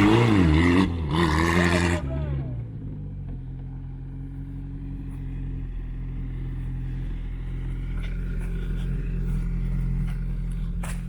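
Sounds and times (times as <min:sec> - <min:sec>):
car engine drone: 0:00.0 - 0:11.0.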